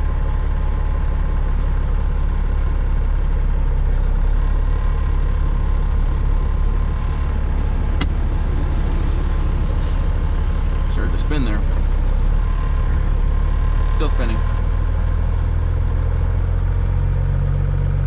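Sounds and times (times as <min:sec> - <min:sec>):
truck diesel engine rumbling: 0:00.0 - 0:18.0.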